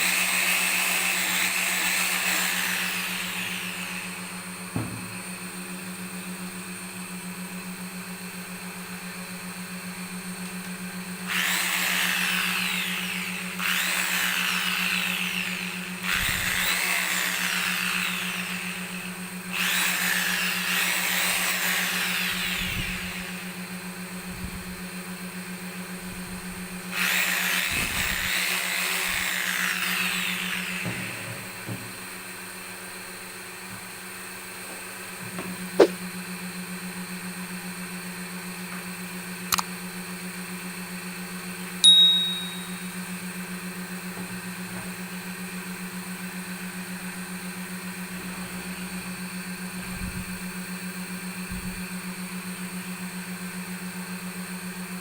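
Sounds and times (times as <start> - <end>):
sewing machine motor whirring: 0.0 - 4.3, 11.3 - 23.6, 26.9 - 31.6.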